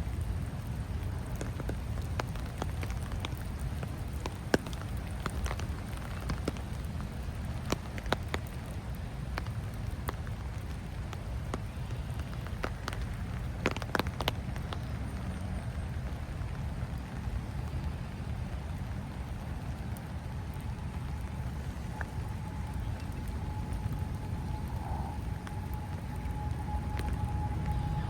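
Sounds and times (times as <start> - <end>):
rain falling: 0.0 - 28.0
steady low rumble: 19.0 - 28.0.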